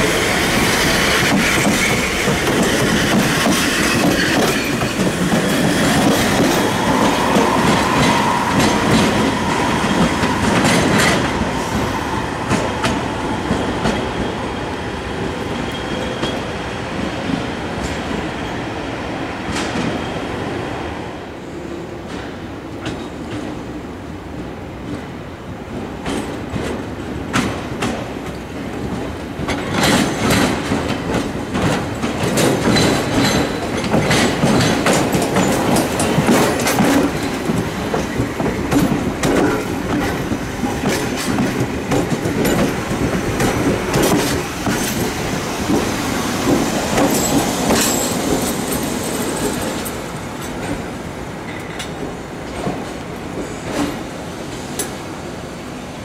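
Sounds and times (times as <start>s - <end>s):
train wheels clicking over rail joints: 0.1s - 14.3s, 25.7s - 55.0s.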